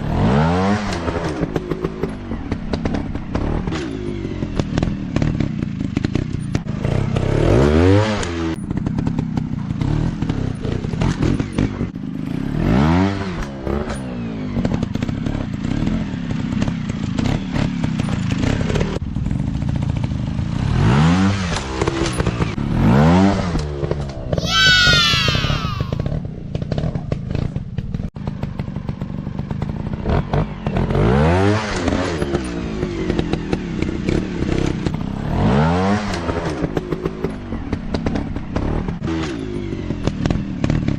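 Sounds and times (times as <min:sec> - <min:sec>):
dirt bike engines revving: 0:20.8 - 0:27.5.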